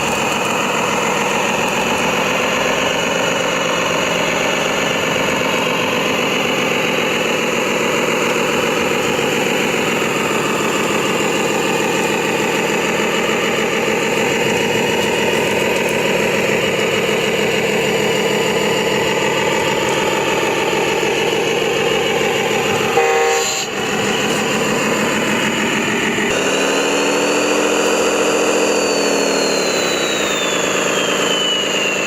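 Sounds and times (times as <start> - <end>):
toy truck diesel engine running: 0.0 - 32.0
short horn blast: 23.0 - 24.1.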